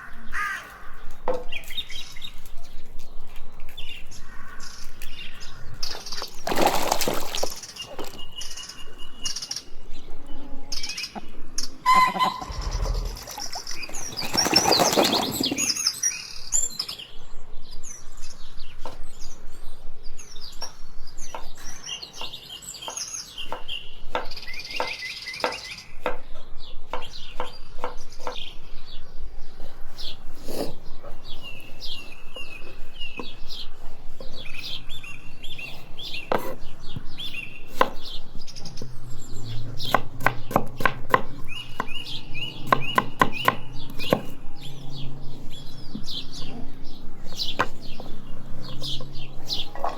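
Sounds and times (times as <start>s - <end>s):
small birds chirping: 0.0s - 49.9s
loud rushing bursts of noise: 12.5s - 13.9s.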